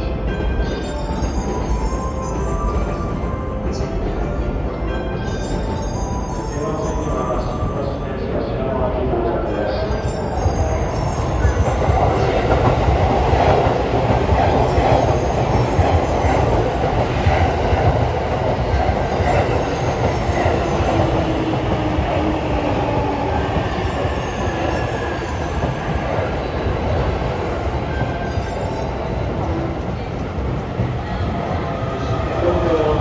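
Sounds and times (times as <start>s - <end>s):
train wheels rumbling on rails: 0.0s - 33.0s
high wheel squeal: 16.4s - 25.7s.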